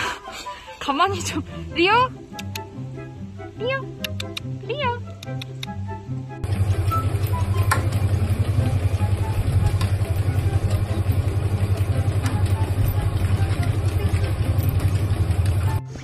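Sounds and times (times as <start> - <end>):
wooden exercise wheel rumbling: 6.4 - 16.0.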